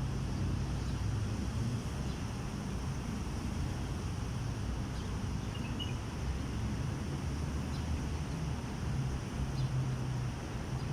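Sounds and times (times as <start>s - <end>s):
small birds chirping: 4.9s - 6.0s, 9.5s - 9.8s.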